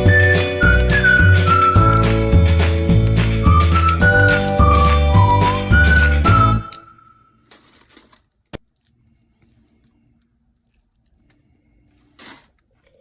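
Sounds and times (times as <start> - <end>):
background music: 0.0 - 7.1
rustling: 7.0 - 13.0.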